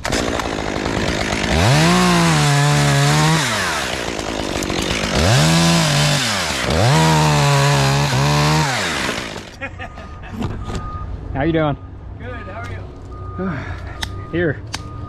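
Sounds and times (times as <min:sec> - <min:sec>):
chainsaw revving into wood: 0:00.0 - 0:09.6.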